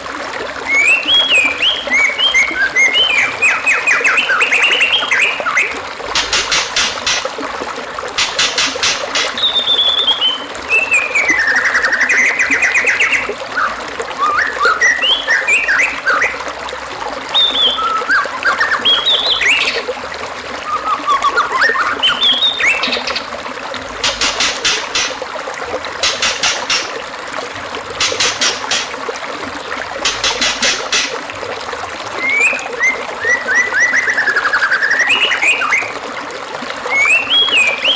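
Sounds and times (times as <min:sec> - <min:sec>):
songbird whistling and chirping: 0:00.7 - 0:05.8, 0:09.2 - 0:16.4, 0:17.3 - 0:19.8, 0:20.6 - 0:23.2, 0:32.2 - 0:36.0, 0:36.9 - 0:37.9.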